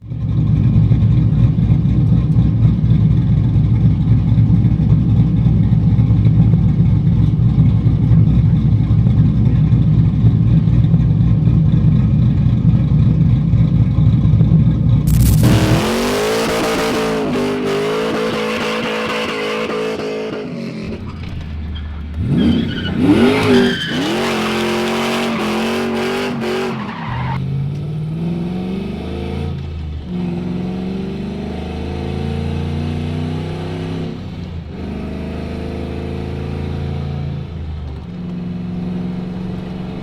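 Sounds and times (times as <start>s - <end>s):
truck engine rumbling: 0.1s - 19.0s, 19.7s - 28.8s.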